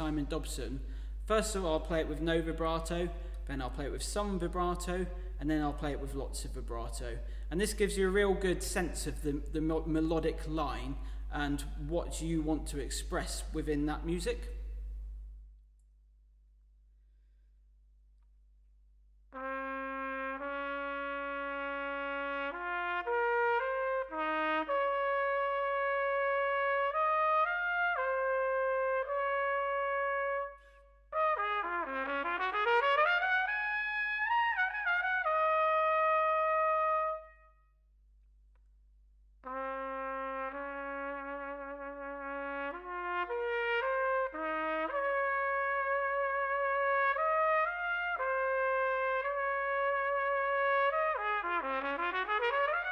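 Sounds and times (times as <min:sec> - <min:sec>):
solo brass instrument melody: 0:19.3 - 0:37.6, 0:39.4 - 0:52.9.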